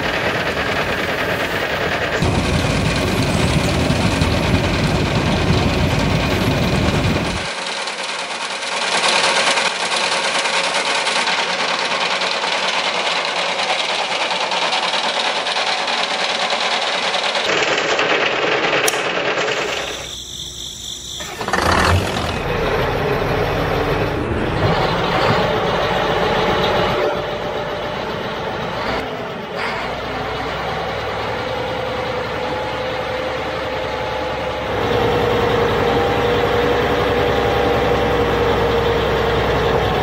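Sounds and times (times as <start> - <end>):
deeper rumble: 0.0 - 7.5, 21.3 - 38.1
engine running: 0.0 - 16.2, 18.7 - 40.0.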